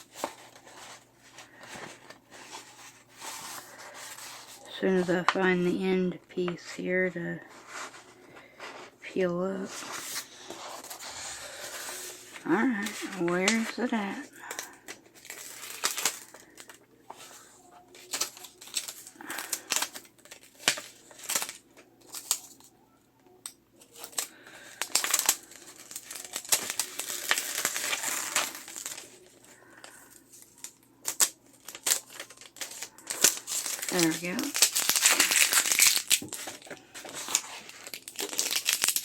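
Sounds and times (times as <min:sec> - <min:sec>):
crinkly paper and tape rustling: 0:00.0 - 0:39.0.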